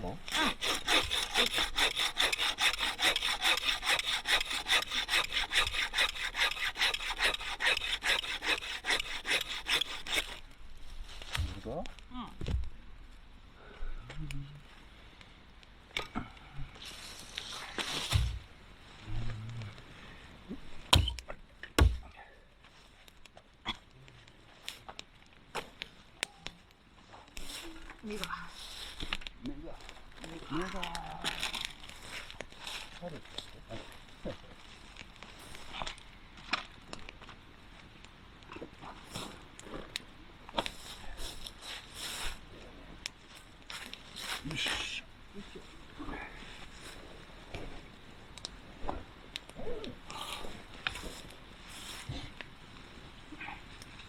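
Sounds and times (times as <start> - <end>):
hand saw cutting wood: 0.3 - 10.4
sharp knocks: 20.9 - 21.2, 21.8 - 22.1.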